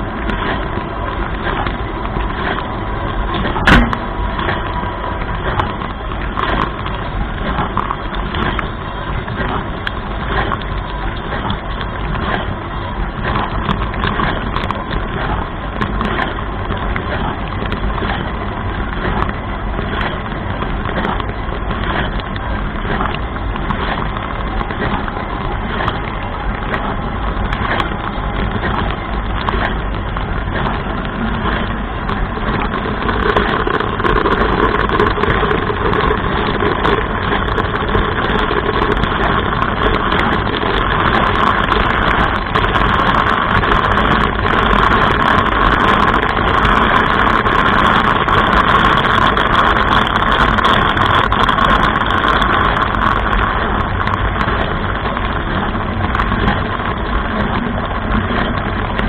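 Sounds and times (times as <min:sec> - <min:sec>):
dishwasher pump hum: 0:00.0 - 0:46.1.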